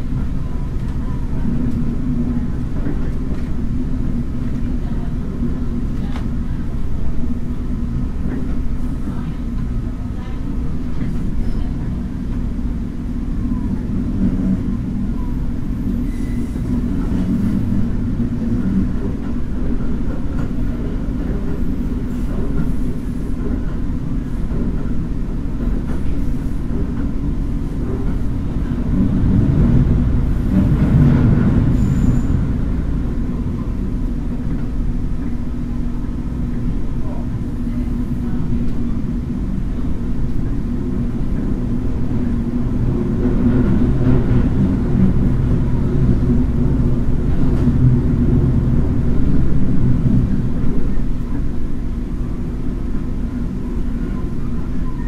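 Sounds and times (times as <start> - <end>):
train rumble heard on board: 0.0 - 55.0.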